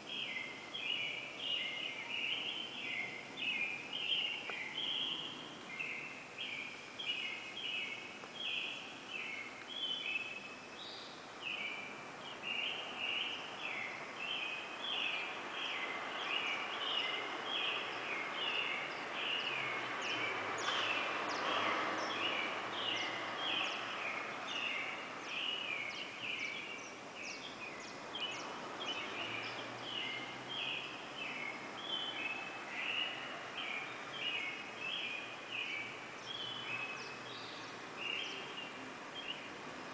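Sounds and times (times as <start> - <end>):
bird chorus chirping: 0.0 - 39.6
steady background hiss: 0.0 - 39.9.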